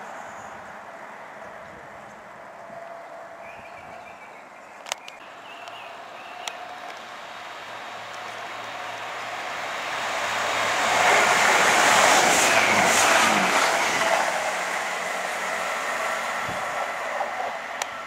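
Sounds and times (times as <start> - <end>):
diesel train passing: 5.2 - 18.0.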